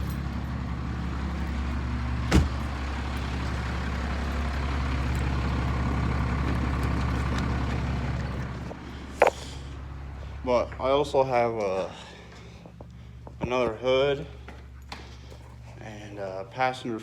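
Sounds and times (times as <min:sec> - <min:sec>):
diesel engine idling: 0:00.0 - 0:17.0
sharp thump: 0:02.3 - 0:02.6.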